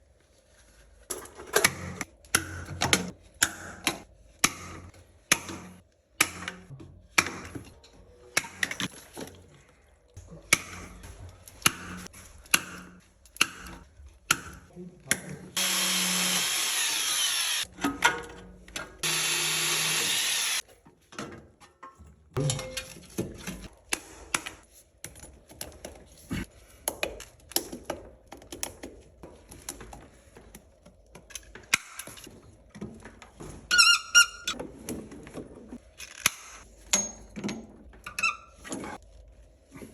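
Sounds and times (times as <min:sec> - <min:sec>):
power tool running: 0:15.6 - 0:17.7, 0:19.0 - 0:20.6
tools clanking on metal fittings: 0:21.1 - 0:23.7.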